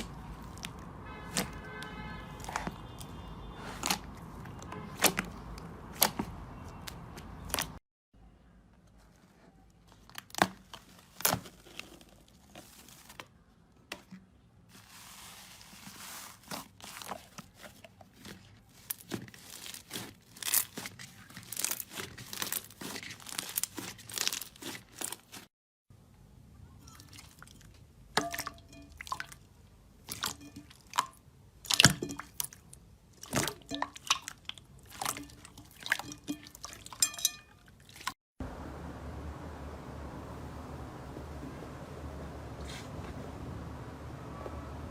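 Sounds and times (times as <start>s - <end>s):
slime popping and crackling: 18.8s - 25.4s.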